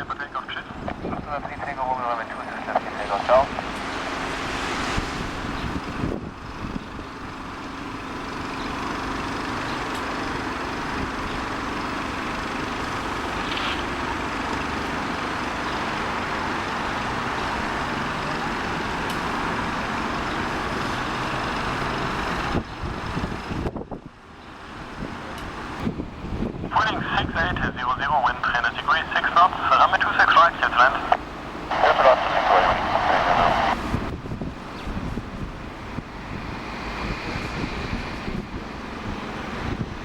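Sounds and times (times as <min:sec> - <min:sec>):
jet airliner engines rushing: 0:00.0 - 0:07.0, 0:26.7 - 0:40.0.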